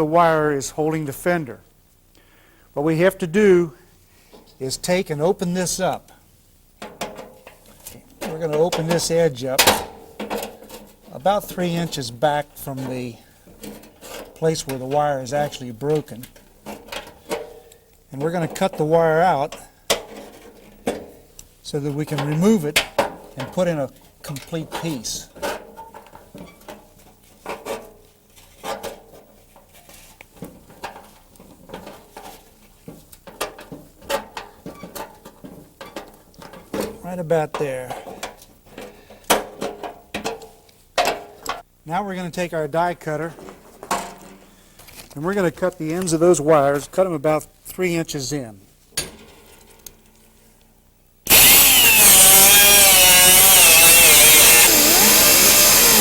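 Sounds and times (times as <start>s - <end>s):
die grinder cutting steel wire: 51.3s - 56.0s.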